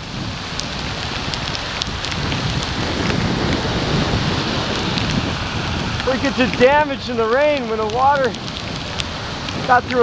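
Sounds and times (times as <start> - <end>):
steady hiss of rain and water: 0.0 - 10.0
drops ticking on microphone: 6.0 - 10.0.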